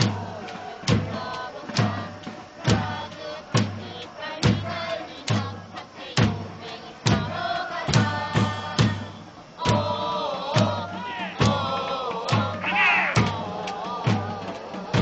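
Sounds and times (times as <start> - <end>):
crowd singing a chant: 0.0 - 15.0
big drum beating: 7.1 - 15.0.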